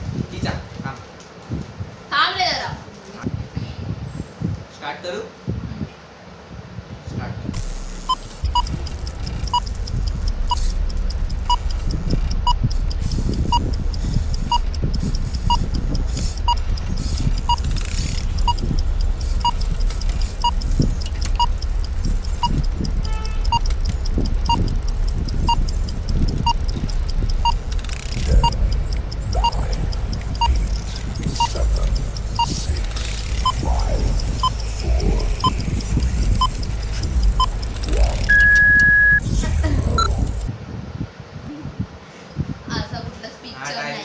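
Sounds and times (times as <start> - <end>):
low background rumble: 7.4 - 42.0
timer ticking: 7.6 - 40.5.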